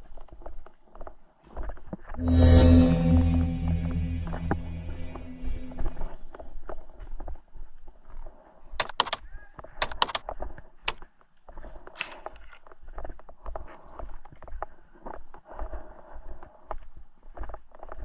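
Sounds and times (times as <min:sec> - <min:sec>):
sharp clicks: 0:08.8 - 0:09.2, 0:09.8 - 0:10.2.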